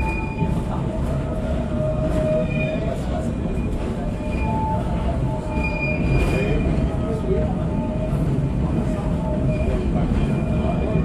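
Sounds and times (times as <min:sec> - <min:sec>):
high wheel squeals: 0:00.0 - 0:00.7, 0:01.4 - 0:07.2
train low rumble: 0:00.0 - 0:11.0.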